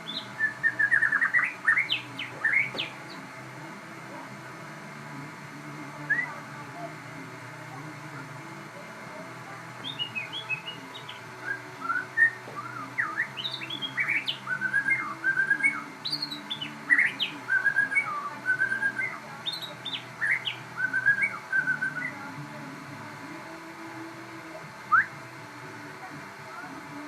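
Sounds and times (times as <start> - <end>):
songbird singing whistled phrases: 0.0 - 3.2, 6.0 - 6.4, 9.8 - 22.3, 24.9 - 25.2.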